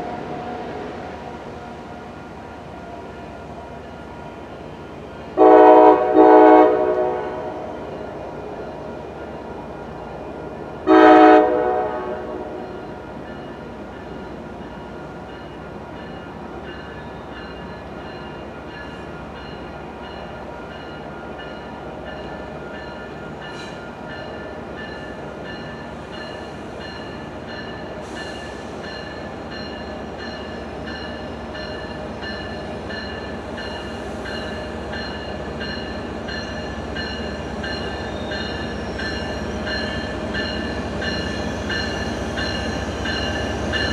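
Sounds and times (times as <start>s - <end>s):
train running hum: 0.0s - 43.9s
train horn blast: 5.4s - 7.8s, 10.8s - 12.8s.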